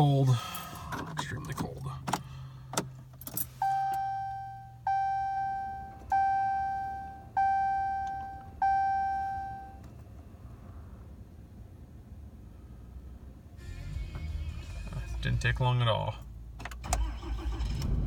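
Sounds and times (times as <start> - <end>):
low steady hum: 0.0 - 18.0
dashboard warning chime dinging: 3.6 - 9.8.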